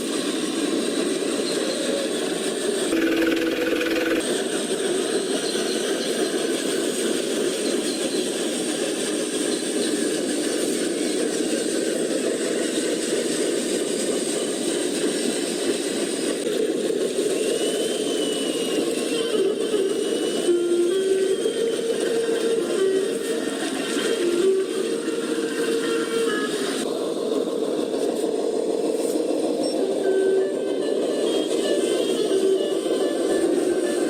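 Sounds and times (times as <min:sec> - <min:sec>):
toy truck motors whirring: 0:03.0 - 0:04.2.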